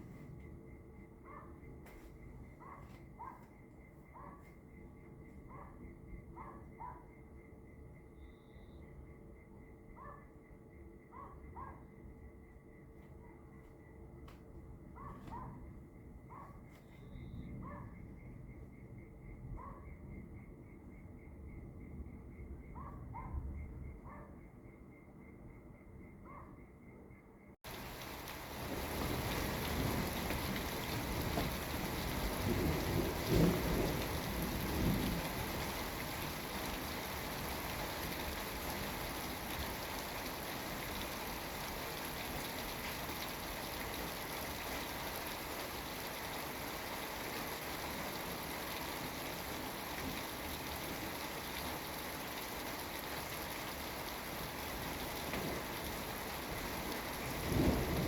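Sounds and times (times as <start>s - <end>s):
steady rain falling: 27.6s - 58.0s
low rumble of thunder: 27.7s - 58.0s.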